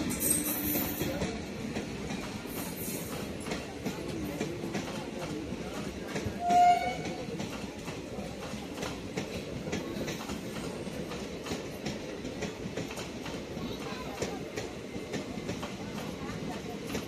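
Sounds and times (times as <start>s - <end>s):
train wheels clicking on rails: 0.0s - 17.0s
train horn blast: 6.4s - 7.2s.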